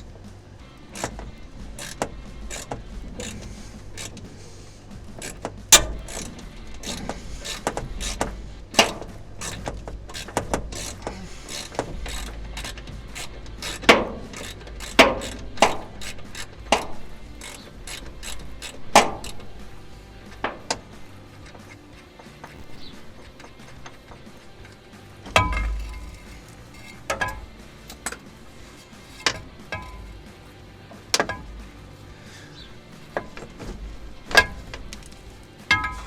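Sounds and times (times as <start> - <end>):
socket ratchet clicking: 0.0 - 28.3
sharp clicks and knocks: 0.0 - 31.7, 33.1 - 36.0.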